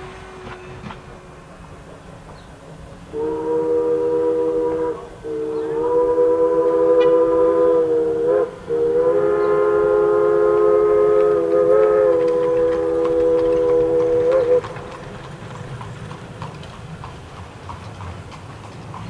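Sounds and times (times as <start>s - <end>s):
steam whistle chord: 0.0s - 2.4s, 3.0s - 14.7s.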